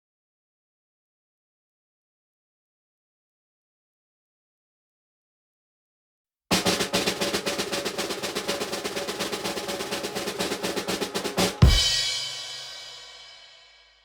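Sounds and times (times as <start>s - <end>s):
snare drum roll: 6.5s - 13.5s
crash cymbal and bass drum hit: 8.5s - 13.8s.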